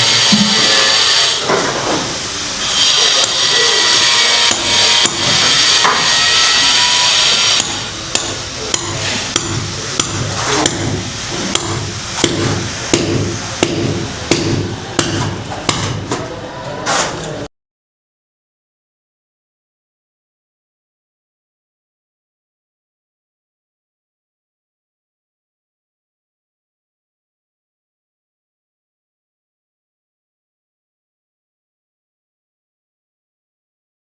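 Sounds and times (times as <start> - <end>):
hammer blows on masonry wall: 2.7 - 16.2.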